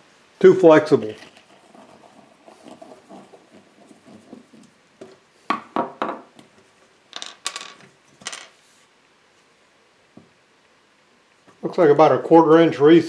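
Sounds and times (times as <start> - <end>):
hard objects clacking on workbench: 7.1 - 8.6.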